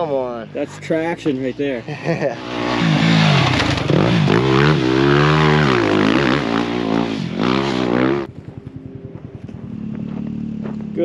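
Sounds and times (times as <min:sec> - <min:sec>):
dirt bike engine revving: 0:00.0 - 0:11.0
low pulsing hum: 0:08.2 - 0:11.0.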